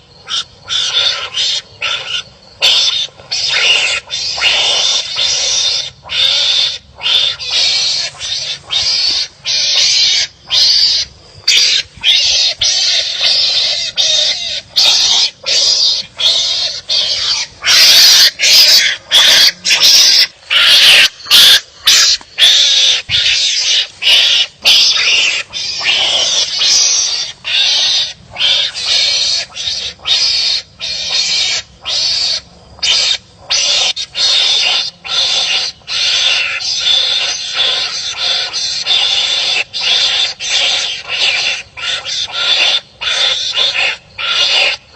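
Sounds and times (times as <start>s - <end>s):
animals barking harshly: 0.0s - 44.9s.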